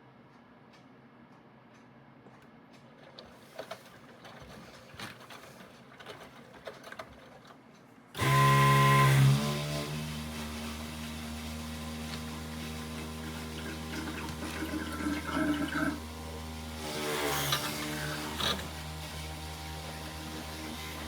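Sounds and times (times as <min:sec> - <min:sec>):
water gushing and splashing: 0:13.0 - 0:16.0.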